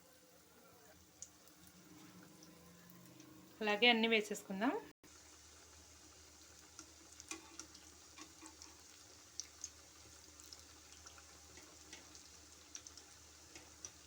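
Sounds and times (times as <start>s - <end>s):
potato slices frying in oil: 0.0s - 14.0s.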